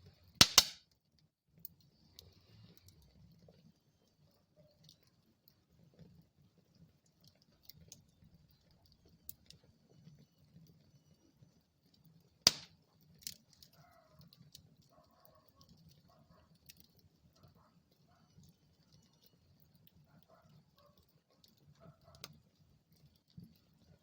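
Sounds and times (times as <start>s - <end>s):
low rumble of fire: 0.0s - 24.0s
wood fire crackling: 0.0s - 24.0s
loud sharp pops: 0.4s - 0.8s, 12.5s - 12.7s.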